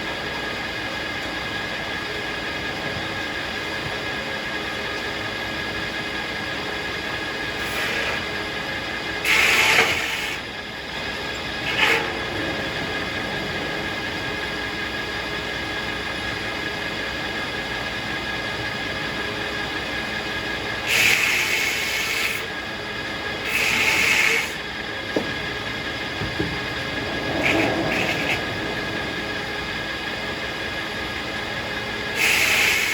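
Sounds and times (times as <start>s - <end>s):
circular sawmill humming: 0.0s - 32.9s
loud hissing bursts: 9.2s - 16.7s, 20.8s - 22.6s, 23.4s - 32.9s.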